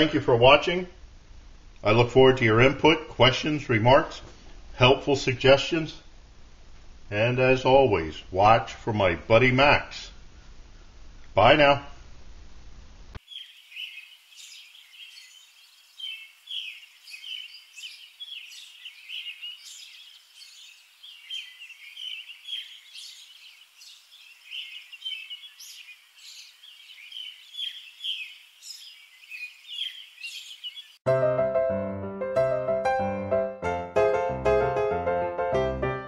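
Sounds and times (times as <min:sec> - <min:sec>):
small birds chirping: 0:13.2 - 0:31.0.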